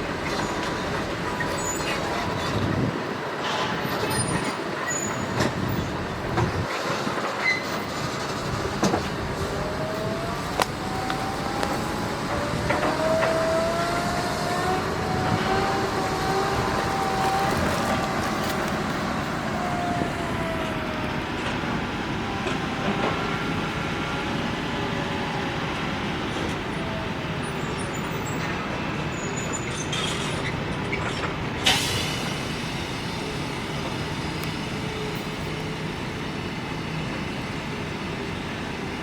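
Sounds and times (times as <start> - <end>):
heavy machinery running: 0.0 - 29.1.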